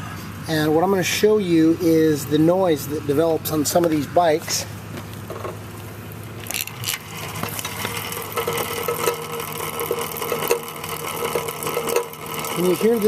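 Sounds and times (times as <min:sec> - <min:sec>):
exercise bike chain running: 0:06.4 - 0:13.0.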